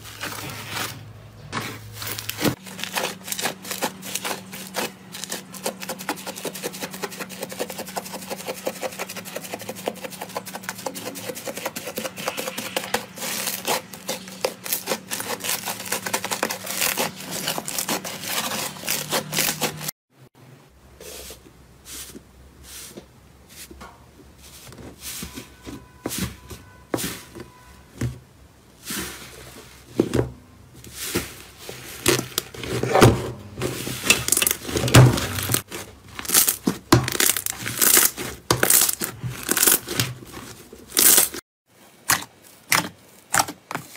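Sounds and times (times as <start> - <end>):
slime squeezed crackling: 36.2 - 39.8.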